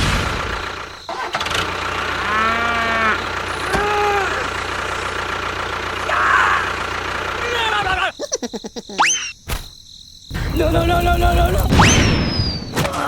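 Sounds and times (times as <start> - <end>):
low engine hum: 0.4 - 7.7
cow mooing: 2.1 - 4.5.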